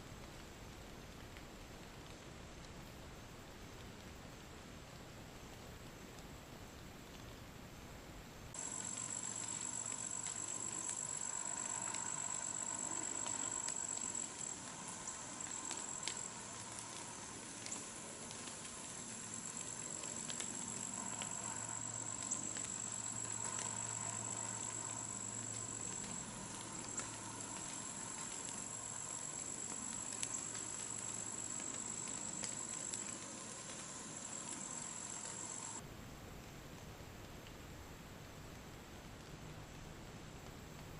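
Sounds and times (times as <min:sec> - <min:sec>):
faint ticks: 0:00.2 - 0:07.4, 0:08.5 - 0:35.8, 0:36.4 - 0:40.9
insects chorus: 0:08.5 - 0:35.8.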